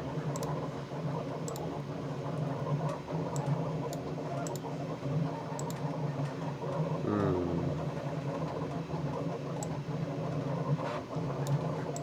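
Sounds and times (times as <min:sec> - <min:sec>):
computer mouse clicking: 0:00.3 - 0:00.6, 0:01.4 - 0:01.7, 0:03.3 - 0:04.7, 0:05.6 - 0:05.8, 0:09.6 - 0:09.8, 0:11.4 - 0:12.0.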